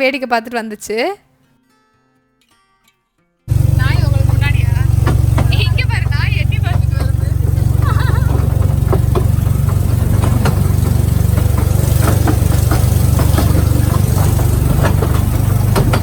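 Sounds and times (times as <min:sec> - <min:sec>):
train clicks and rattles: 0:03.5 - 0:16.0
train rumbling: 0:03.5 - 0:16.0.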